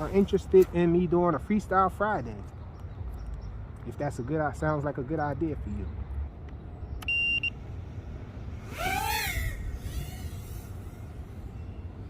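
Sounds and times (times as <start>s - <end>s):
short electronic beep: 7.1s - 7.5s.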